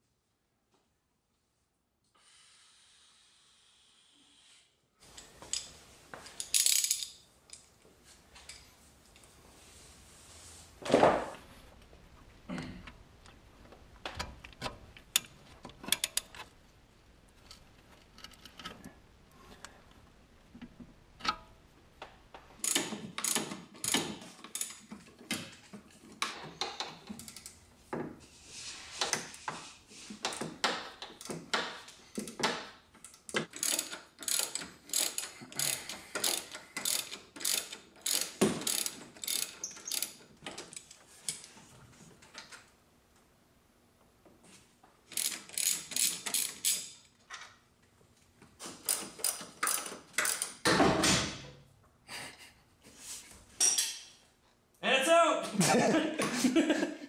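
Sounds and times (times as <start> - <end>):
ratchet wrench clicking: 6.5 - 7.1, 22.6 - 24.8, 33.0 - 40.2, 45.1 - 47.0, 48.9 - 50.6.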